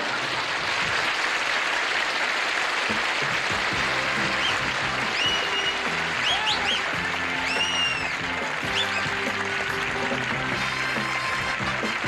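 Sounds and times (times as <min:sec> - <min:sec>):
studio audience applauding: 0:00.0 - 0:12.0
band playing instrumental music: 0:02.9 - 0:12.0.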